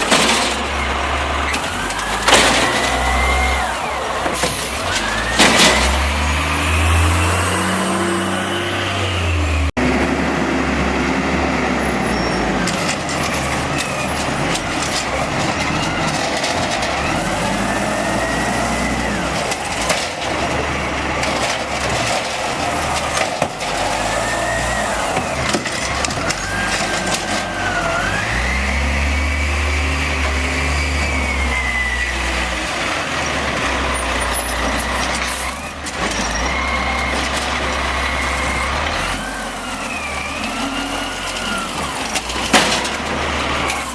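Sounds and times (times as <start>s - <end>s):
hydraulic whine: 0.0s - 10.2s
garbage truck engine revving: 0.0s - 43.9s.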